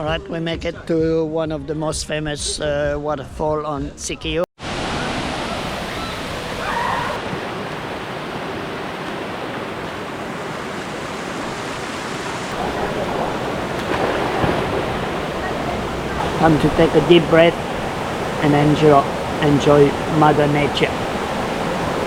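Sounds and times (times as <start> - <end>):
waterfall rushing into pool: 4.6 - 22.0.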